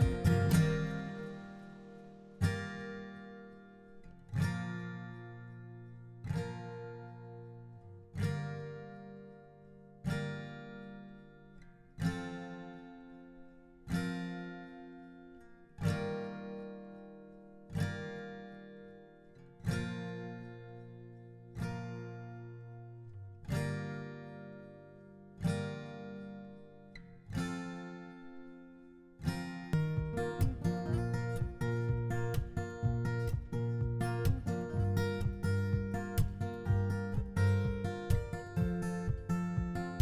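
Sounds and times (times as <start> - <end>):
slow acoustic guitar chords: 0.0 - 40.0.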